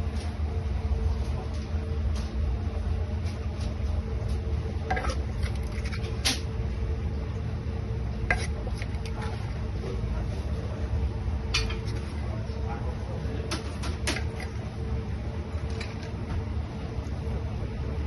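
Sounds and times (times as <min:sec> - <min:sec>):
low kitchen hum: 0:00.0 - 0:18.0
dishes and utensils clinking: 0:04.9 - 0:06.4, 0:11.6 - 0:12.2.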